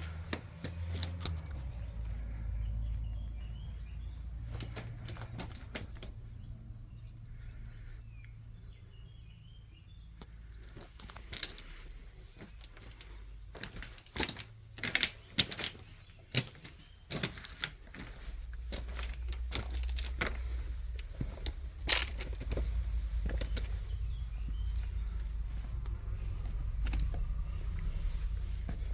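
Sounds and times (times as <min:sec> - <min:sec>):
low steady rumble: 0:00.0 - 0:28.9
faint chirps: 0:18.4 - 0:28.9.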